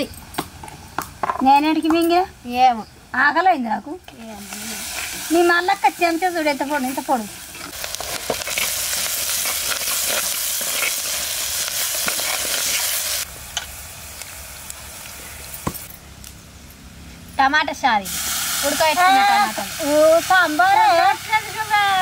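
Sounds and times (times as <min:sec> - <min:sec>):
food sizzling in a pan: 0:04.1 - 0:15.8, 0:18.1 - 0:22.0.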